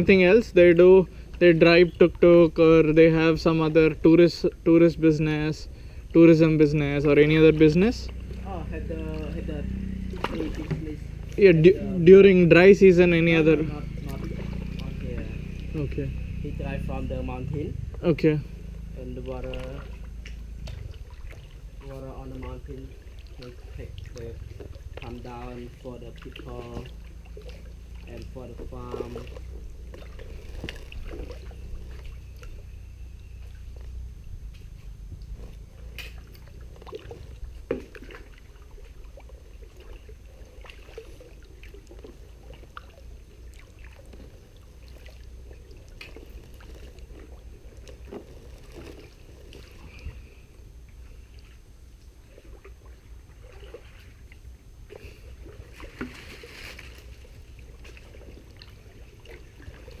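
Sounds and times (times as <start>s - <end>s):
low steady rumble: 0.0s - 60.0s
paddle splashing water: 6.9s - 16.0s, 18.0s - 34.0s, 34.6s - 60.0s.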